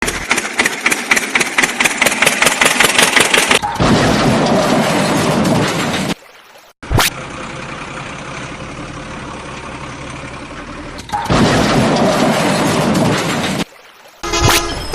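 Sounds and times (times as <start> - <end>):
engine cranking and running: 0.0 - 6.1, 7.1 - 13.6.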